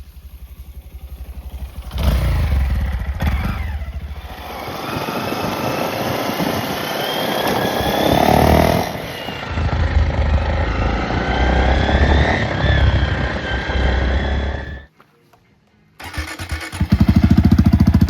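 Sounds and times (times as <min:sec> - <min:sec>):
motorcycle engine accelerating: 0:00.0 - 0:14.9, 0:16.0 - 0:18.0.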